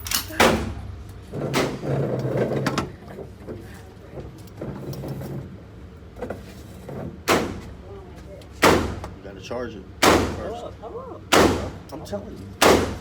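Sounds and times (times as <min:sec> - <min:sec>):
gunshots echoing indoors: 0:12.6 - 0:13.0.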